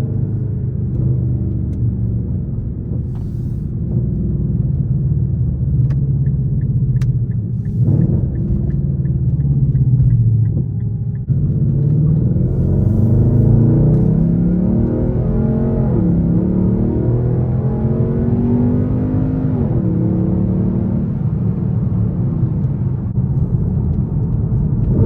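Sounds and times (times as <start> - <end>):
car exhaust drumming: 0.3 - 16.7.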